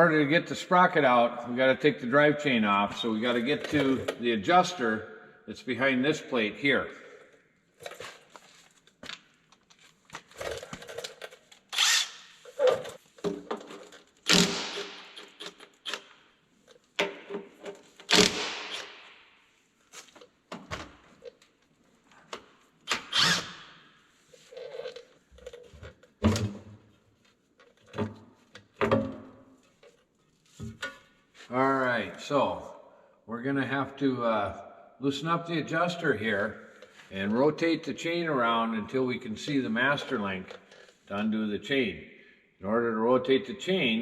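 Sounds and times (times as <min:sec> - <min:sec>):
handheld power tool bursts: 0:11.7 - 0:12.4, 0:14.2 - 0:16.2, 0:18.0 - 0:19.1, 0:22.9 - 0:23.7.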